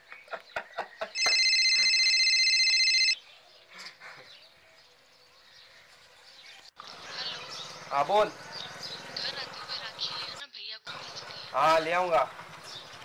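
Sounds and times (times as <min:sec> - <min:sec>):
phone ring tone: 0:01.2 - 0:03.2.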